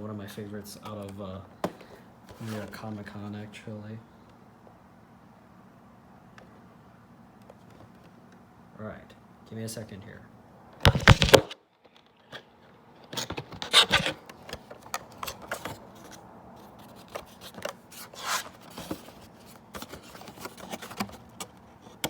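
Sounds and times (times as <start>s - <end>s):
packaging rustling and scraping: 1.6s - 2.8s, 10.9s - 11.6s, 13.1s - 22.0s.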